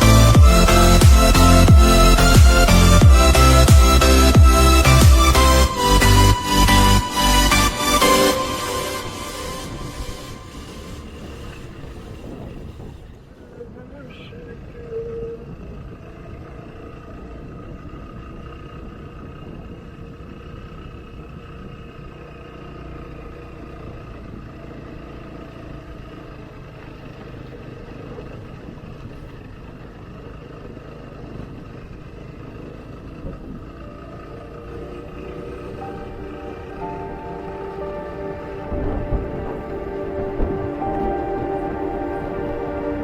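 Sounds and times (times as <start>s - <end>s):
road and wind noise: 0.0s - 43.0s
motorcycle engine running: 9.8s - 13.8s, 14.5s - 38.0s.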